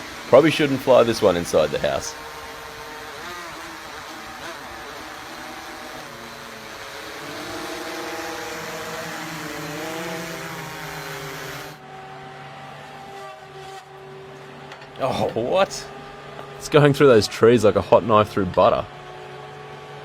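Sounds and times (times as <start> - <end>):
machine hum: 0.0 - 11.8
drone propellers whining: 0.0 - 19.6.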